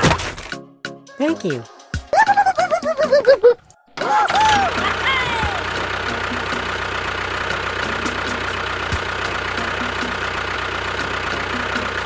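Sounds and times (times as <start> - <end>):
background music with beat: 0.5 - 6.9, 7.5 - 12.0
motor running: 4.1 - 12.0.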